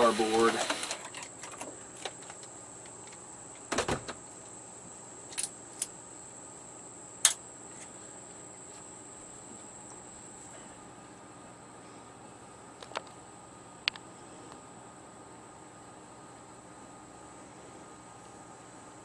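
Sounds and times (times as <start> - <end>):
faint high-pitched whine: 0.0 - 19.0.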